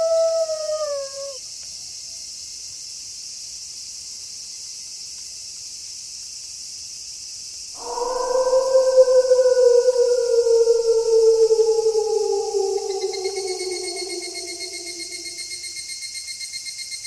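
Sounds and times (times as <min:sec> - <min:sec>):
crickets chirring: 0:00.0 - 0:01.4, 0:07.7 - 0:17.0
wolf howling: 0:00.0 - 0:01.4, 0:07.8 - 0:15.7.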